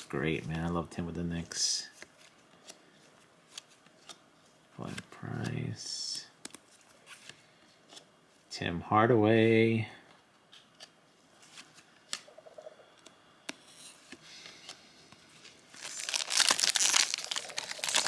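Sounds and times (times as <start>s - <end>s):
wrapper crinkling and tearing: 15.5s - 18.0s
trading cards clicking and rustling: 15.8s - 18.0s.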